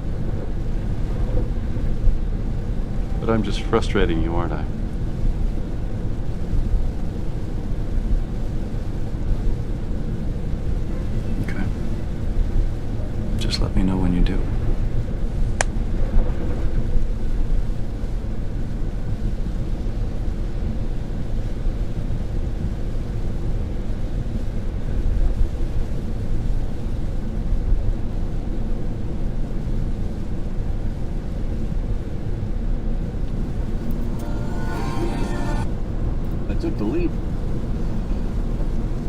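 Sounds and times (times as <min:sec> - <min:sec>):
car cabin rumble: 0:33.4 - 0:39.0.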